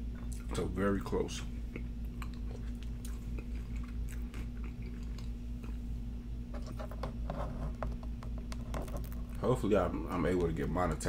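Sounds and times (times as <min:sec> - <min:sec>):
steady low hum: 0:00.0 - 0:11.0
chewing fries with crunches: 0:01.5 - 0:06.0.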